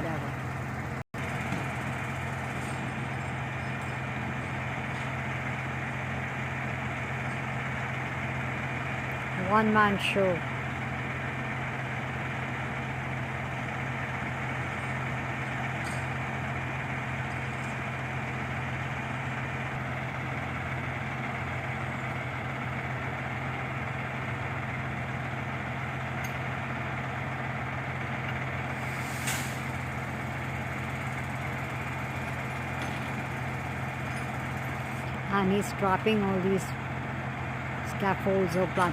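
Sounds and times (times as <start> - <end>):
truck engine idling: 0.0 - 38.9
sharp hiss or clank: 28.8 - 29.8.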